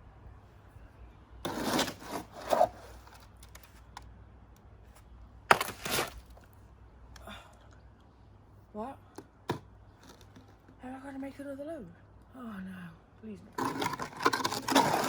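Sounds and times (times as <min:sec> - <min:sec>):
hand tool scraping wet cement: 0:01.5 - 0:03.2, 0:13.6 - 0:15.0.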